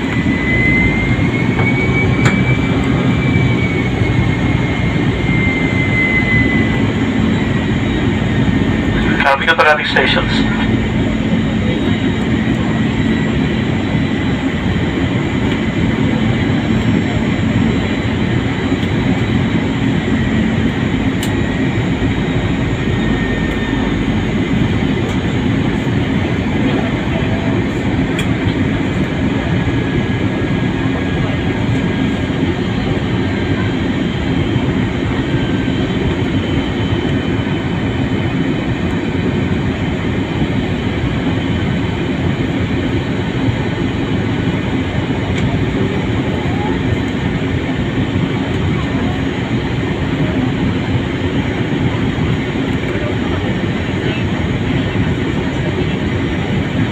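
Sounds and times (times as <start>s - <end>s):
low hum: 0.0s - 39.6s
airliner engines roaring: 0.0s - 56.9s.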